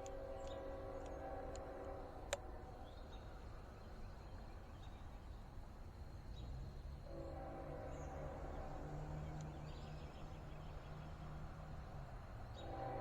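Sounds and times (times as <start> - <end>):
locomotive horn: 0.0 - 2.4, 7.1 - 9.4, 12.6 - 13.0.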